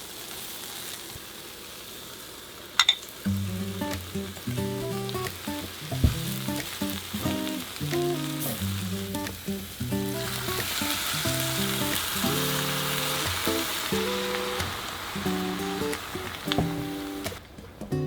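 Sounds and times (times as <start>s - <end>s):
food sizzling in oil: 0.0s - 17.4s
sharp knock: 6.0s - 6.4s.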